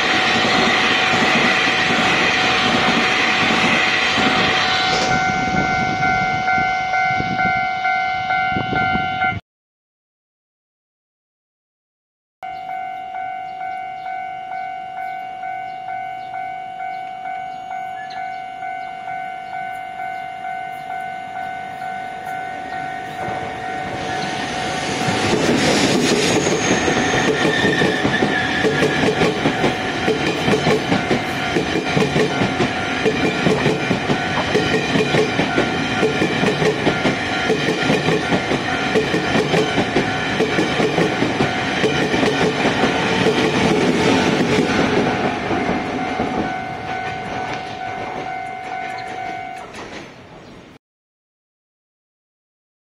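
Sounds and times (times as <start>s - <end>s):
level crossing bell dinging: 12.4s - 24.8s, 44.7s - 49.8s
train wheels clacking over rail joints: 25.0s - 50.2s.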